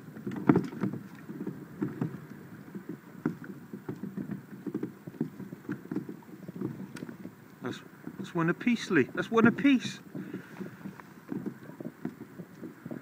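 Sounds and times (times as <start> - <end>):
water lapping against hull: 0.0 - 13.0.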